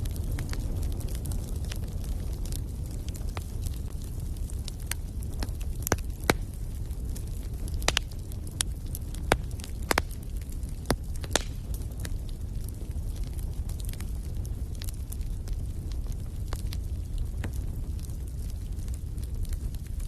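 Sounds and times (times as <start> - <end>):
logs crackling and popping: 0.0 - 20.0
low rumble of flames: 0.0 - 20.0.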